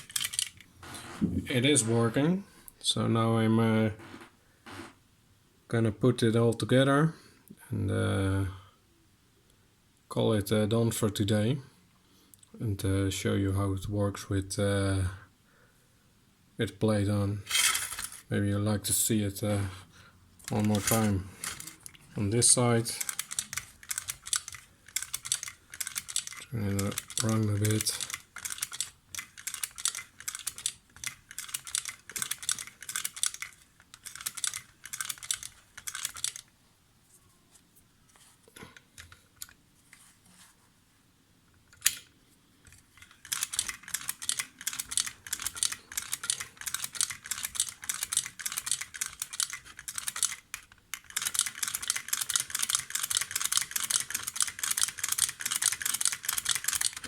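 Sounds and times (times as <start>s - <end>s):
sewing machine clattering: 51.0s - 57.0s.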